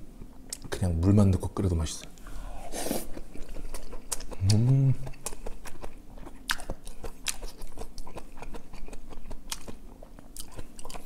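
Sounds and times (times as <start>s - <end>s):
person chewing with wet mouth clicks: 3.1s - 11.0s.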